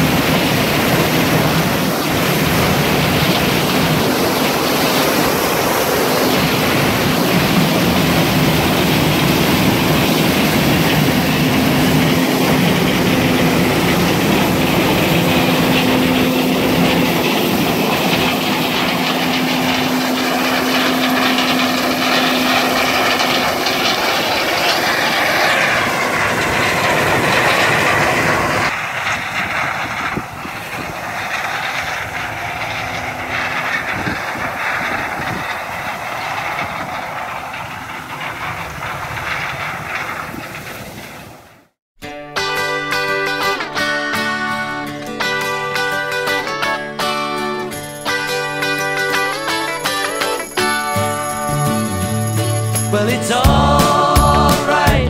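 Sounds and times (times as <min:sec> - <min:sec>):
harvest machinery humming: 0:00.0 - 0:41.0, 0:47.1 - 0:55.0
wind noise on microphone: 0:00.0 - 0:41.6.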